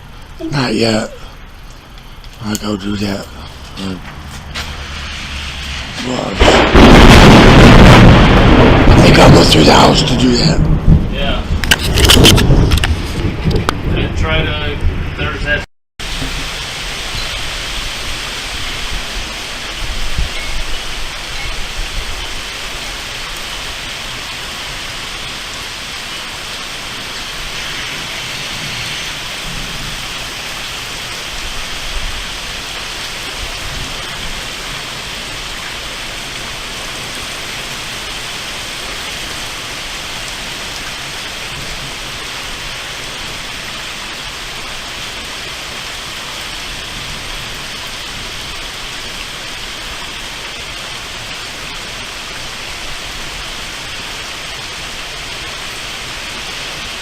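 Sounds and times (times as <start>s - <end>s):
heavy rain falling: 0.0s - 57.0s
low thunder rumble: 4.4s - 22.7s.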